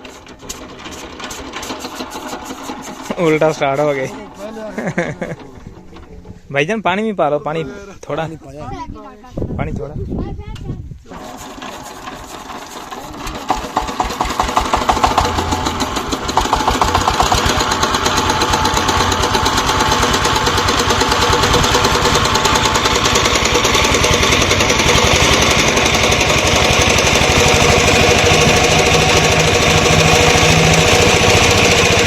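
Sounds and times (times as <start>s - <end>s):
diesel engine knocking: 13.4s - 32.0s.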